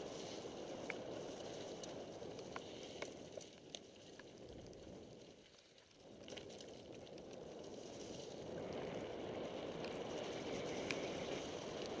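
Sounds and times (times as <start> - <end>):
mountain bike rushing downhill: 6.0 - 12.0.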